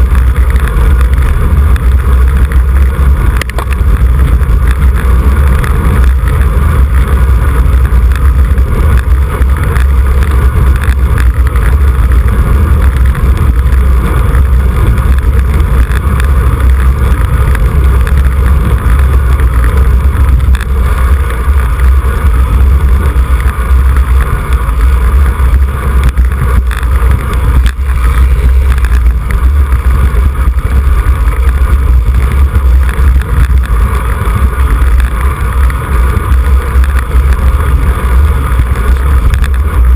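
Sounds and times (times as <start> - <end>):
wind buffeting on microphone: 0.0 - 39.9.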